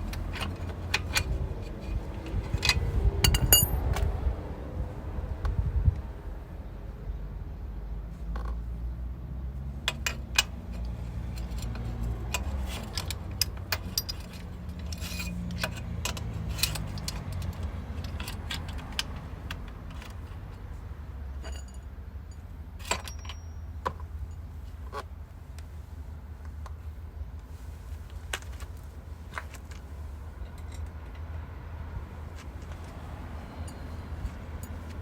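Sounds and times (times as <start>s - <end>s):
metal tools clinking: 0.0s - 3.8s, 9.9s - 20.4s, 21.3s - 24.5s, 32.4s - 35.0s
low steady rumble: 0.0s - 35.0s.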